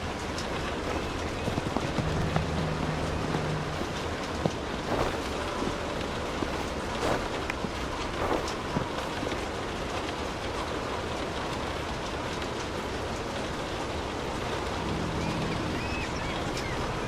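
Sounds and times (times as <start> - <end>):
low hum: 0.0 - 9.6
rain falling: 0.0 - 17.0.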